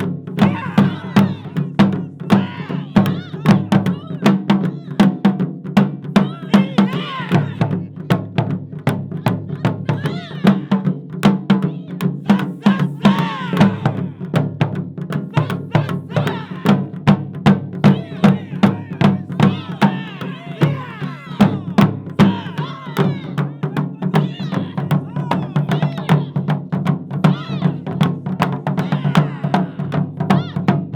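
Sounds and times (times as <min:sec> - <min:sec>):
taiko drums playing: 0:00.0 - 0:30.9
voices calling: 0:00.4 - 0:05.0, 0:06.2 - 0:07.7, 0:11.7 - 0:14.2, 0:15.3 - 0:16.8, 0:17.8 - 0:26.4, 0:28.6 - 0:29.8.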